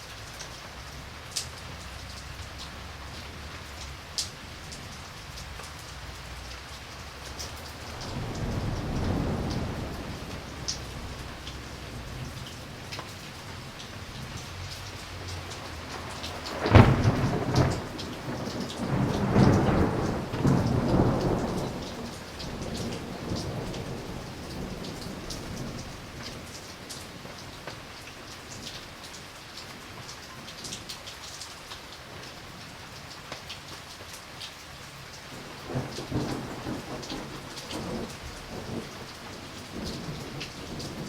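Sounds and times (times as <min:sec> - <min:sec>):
steady rain falling: 0:00.0 - 0:41.0
thunderclap rumbling: 0:07.2 - 0:27.0, 0:35.3 - 0:41.0.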